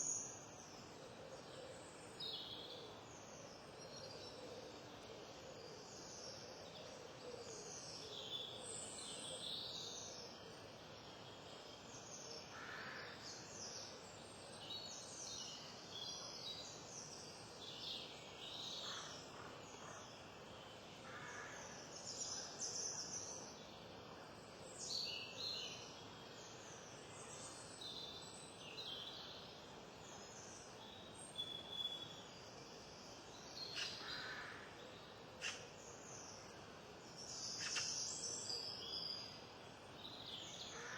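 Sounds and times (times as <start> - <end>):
faint steady hiss: 0.0 - 40.9
wild birds chirping: 11.3 - 40.9.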